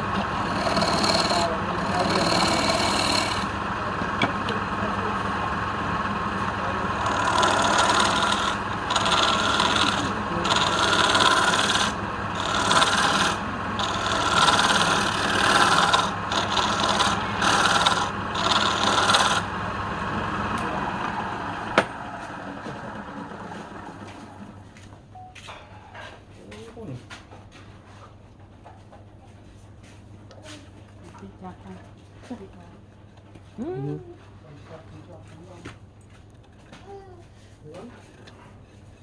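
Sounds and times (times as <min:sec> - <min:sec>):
tool rasping wood: 0:00.0 - 0:03.6, 0:06.8 - 0:19.6
lathe motor hum: 0:00.0 - 0:24.7.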